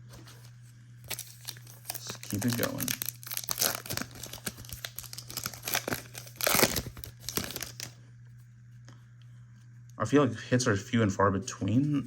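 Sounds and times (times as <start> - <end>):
foil wrapper crinkling and tearing: 1.0 - 8.0.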